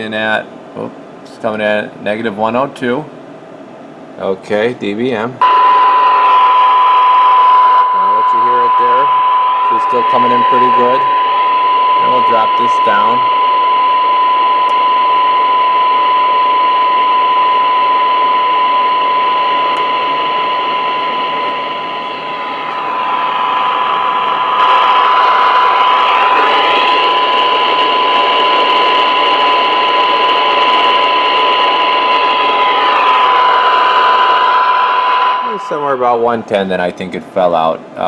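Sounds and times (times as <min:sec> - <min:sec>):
radio static hiss: 0:04.2 - 0:15.0, 0:18.6 - 0:38.0
steady test tone: 0:05.4 - 0:37.5.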